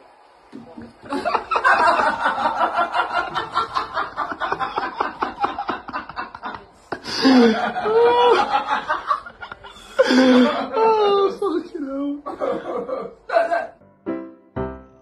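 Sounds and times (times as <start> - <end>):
person snickering: 4.8 - 8.5.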